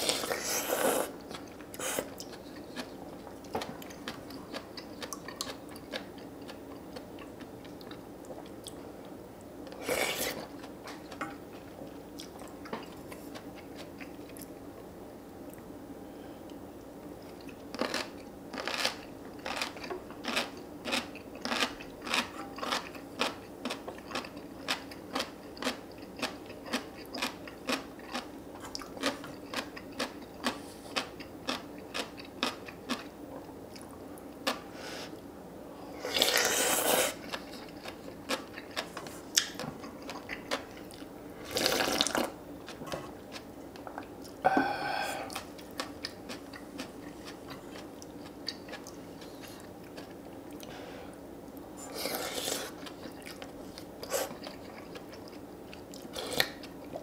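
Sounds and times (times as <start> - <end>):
crunchy chewing: 17.2 - 34.6, 36.0 - 44.4, 45.3 - 50.7, 51.8 - 57.0.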